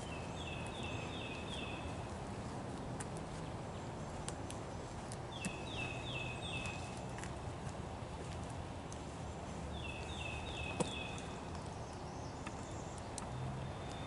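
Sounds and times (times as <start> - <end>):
songbird singing: 0.0 - 14.0
faint clicks: 12.4 - 14.0.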